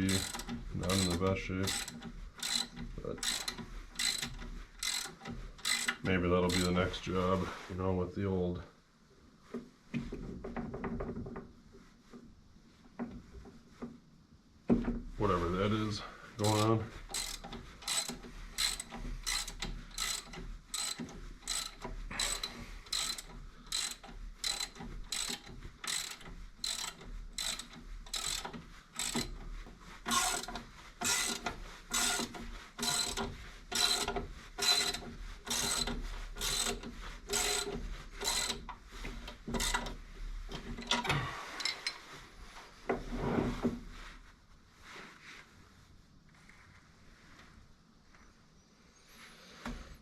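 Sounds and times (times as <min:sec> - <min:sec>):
ratchet wrench clicking: 0:00.0 - 0:06.8, 0:16.4 - 0:29.3, 0:30.1 - 0:38.6.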